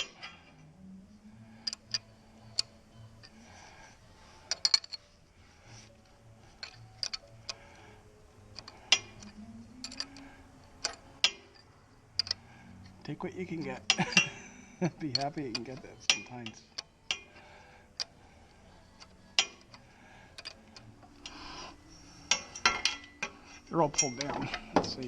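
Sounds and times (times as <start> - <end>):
ratchet wrench clicking: 1.6 - 3.4, 6.6 - 7.7, 8.6 - 11.6, 12.2 - 12.4, 19.0 - 19.8.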